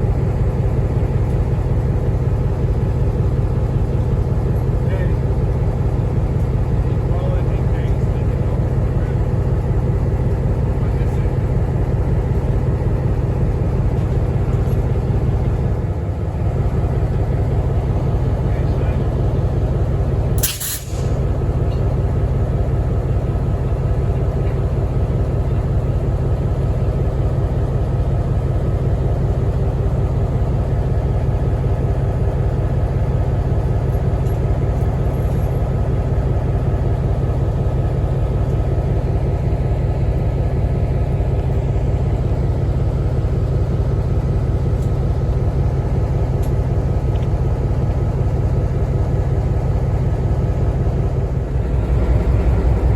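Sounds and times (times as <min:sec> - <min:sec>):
train rumbling: 0:00.0 - 0:52.9
short sharp click: 0:20.4 - 0:21.1
steady tones: 0:51.4 - 0:52.9.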